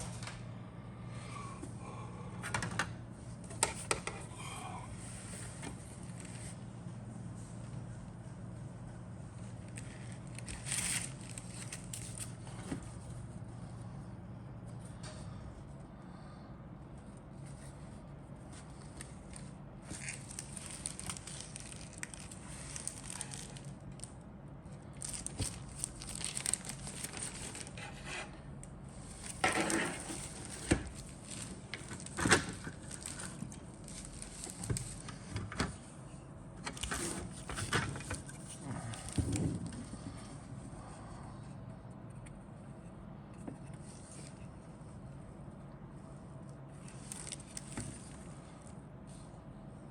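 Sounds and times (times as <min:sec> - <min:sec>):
steady low hum: 0:00.0 - 0:49.9
plastic packaging crinkling: 0:19.0 - 0:24.2, 0:24.8 - 0:27.8, 0:29.0 - 0:35.3, 0:46.9 - 0:48.2.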